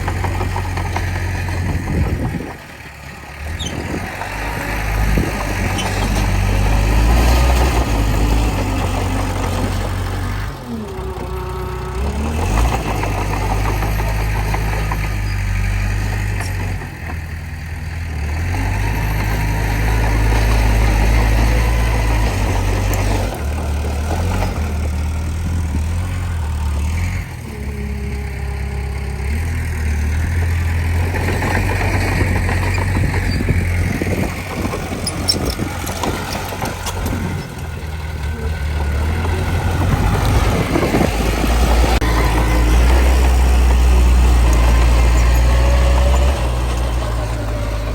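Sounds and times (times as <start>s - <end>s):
bulldozer diesel engine working: 0.0s - 47.9s.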